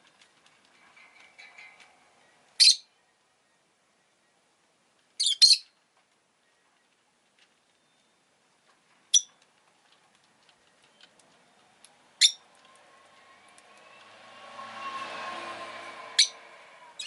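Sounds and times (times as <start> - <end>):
bird chirps: 1.6 - 4.4, 5.2 - 5.8
passing vehicle: 11.3 - 17.0.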